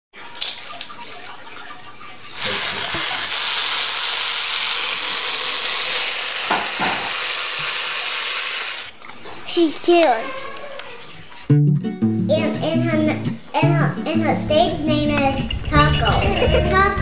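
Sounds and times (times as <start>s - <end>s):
running water hissing: 2.1s - 11.4s.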